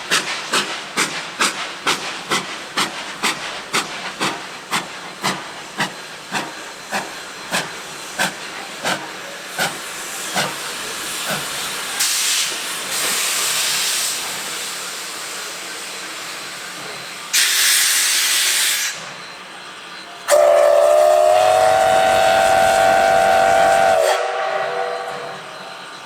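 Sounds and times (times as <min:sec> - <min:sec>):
steam locomotive hissing: 0:00.0 - 0:26.0
burst of steam: 0:00.1 - 0:19.1, 0:20.3 - 0:25.8
chime steam whistle blast: 0:20.1 - 0:26.0.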